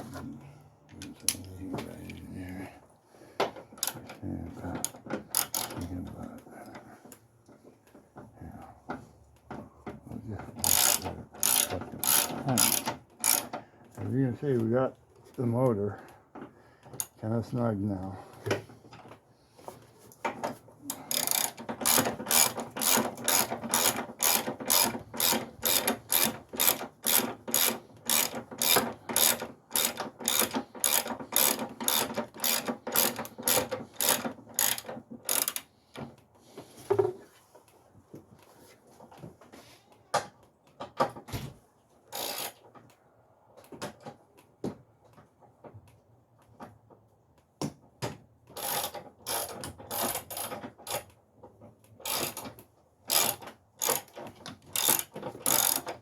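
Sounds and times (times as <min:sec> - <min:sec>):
ratchet wrench clicking: 0:05.3 - 0:05.8, 0:10.6 - 0:13.5, 0:21.1 - 0:35.7, 0:42.1 - 0:42.6, 0:48.6 - 0:51.0, 0:52.0 - 0:52.4, 0:53.1 - 0:54.1, 0:54.7 - 0:55.9.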